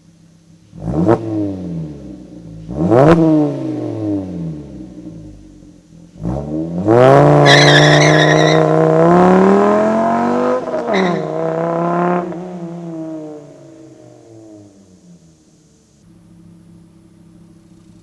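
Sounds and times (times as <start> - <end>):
car engine revving: 0.7 - 18.0.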